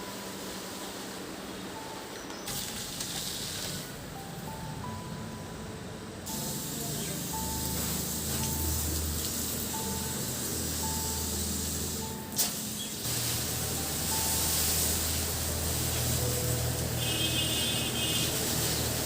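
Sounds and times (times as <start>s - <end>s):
soft background music: 0.0s - 19.0s
steady hiss: 6.2s - 19.0s.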